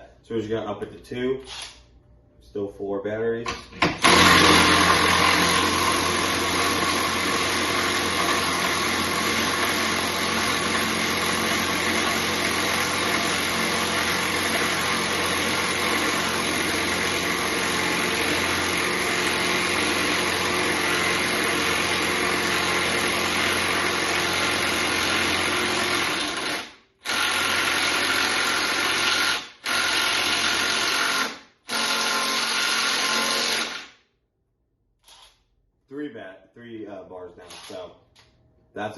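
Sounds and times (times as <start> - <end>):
impact driver hammering: 3.5 - 33.9.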